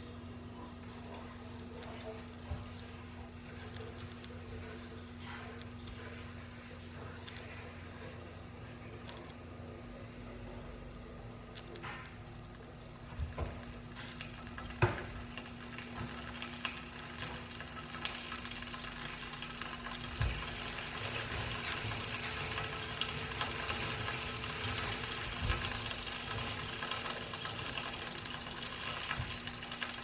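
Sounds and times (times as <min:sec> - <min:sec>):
steady low hum: 0:00.0 - 0:29.8
vegetables sizzling in pan: 0:14.5 - 0:30.0.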